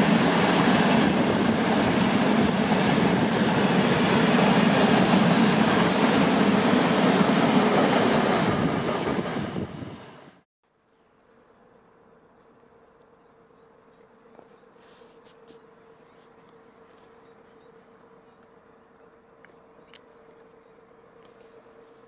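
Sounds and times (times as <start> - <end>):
train wheels on rails: 0.0 - 10.3.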